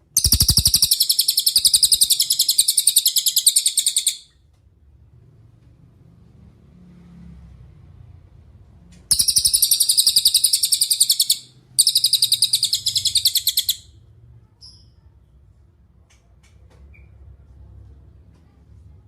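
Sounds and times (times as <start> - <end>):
bird chirp: 0.0 - 4.4, 9.1 - 13.9
bird singing high fast trills: 0.1 - 4.3, 9.1 - 13.9.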